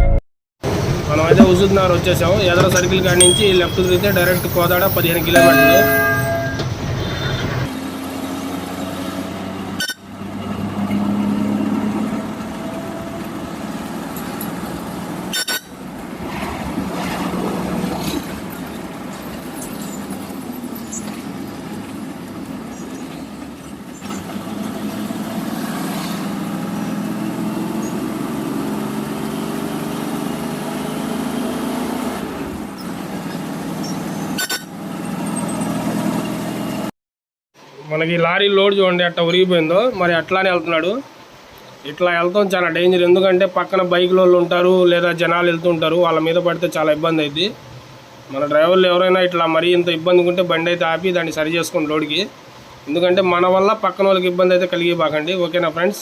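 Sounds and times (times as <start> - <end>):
lorry diesel engine: 0.0 - 36.9
road noise: 0.6 - 36.9, 37.6 - 56.0.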